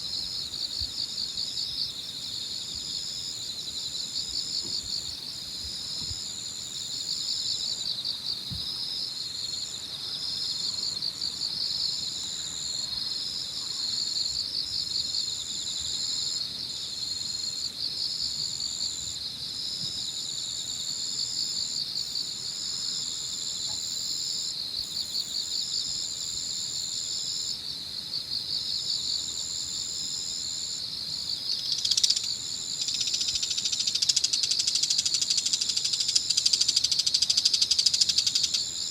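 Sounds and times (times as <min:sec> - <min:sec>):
dense pulsing insect trill: 0:00.0 - 0:38.9
high-pitched insect trill: 0:00.0 - 0:38.9
brief loud insect call: 0:08.3 - 0:09.1.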